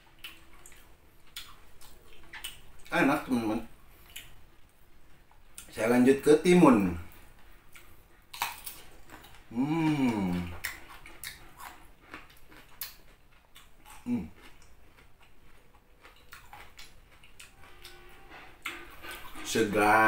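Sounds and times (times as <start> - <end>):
crunchy chewing of cucumber: 0.0 - 4.4, 7.6 - 19.8
person humming: 9.5 - 10.6.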